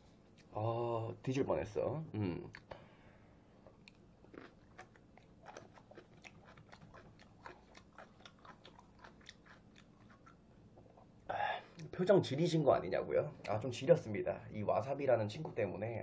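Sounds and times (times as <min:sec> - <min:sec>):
faint chewing mouth clicks: 0:03.6 - 0:11.1.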